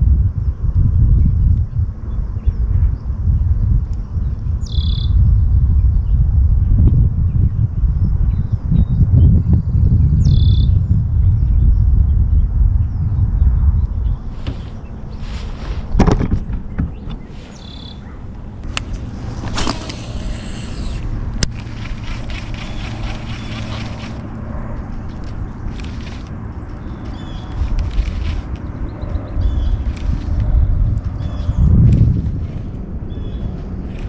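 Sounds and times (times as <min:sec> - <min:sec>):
wind rumbling on microphone: 0:00.0 - 0:34.0
faint bird chirps: 0:17.2 - 0:18.3
bursts of hissing noise: 0:17.3 - 0:21.2.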